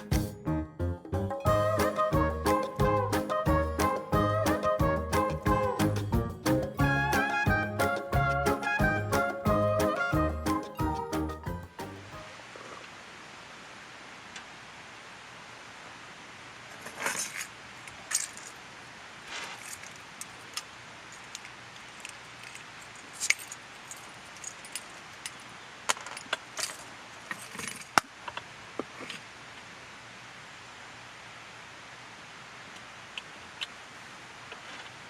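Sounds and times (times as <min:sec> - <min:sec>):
faint steady hiss: 0:00.0 - 0:35.0
camping gear clinking: 0:21.1 - 0:28.0.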